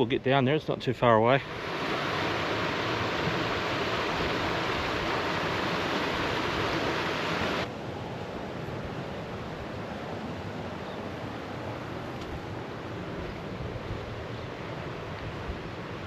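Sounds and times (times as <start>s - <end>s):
creek water running over rocks: 1.4s - 7.7s.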